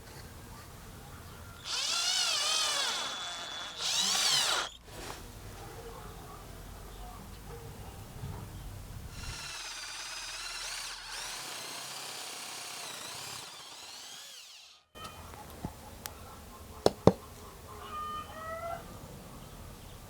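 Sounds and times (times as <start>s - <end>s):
power tool whining: 1.6s - 5.2s, 9.1s - 15.3s.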